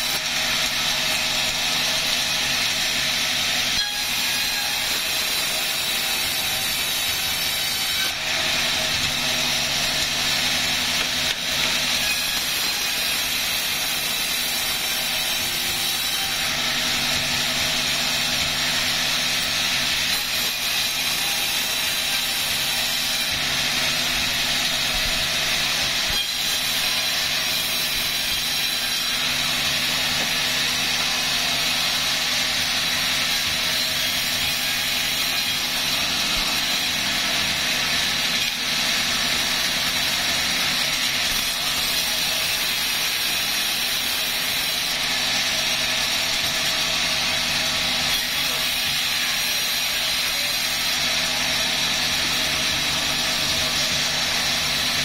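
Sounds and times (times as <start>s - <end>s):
sawmill machinery drone: 0.0s - 55.0s.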